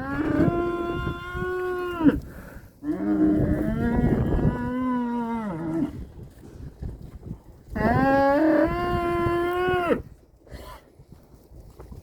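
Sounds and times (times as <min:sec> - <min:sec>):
cattle mooing: 0:00.0 - 0:02.2.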